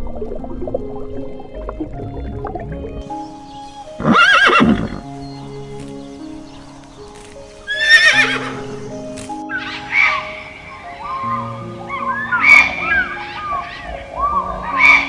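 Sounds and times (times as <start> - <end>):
background music with held notes: 0.0 - 15.0
horse neighing: 4.0 - 5.1, 7.7 - 8.7.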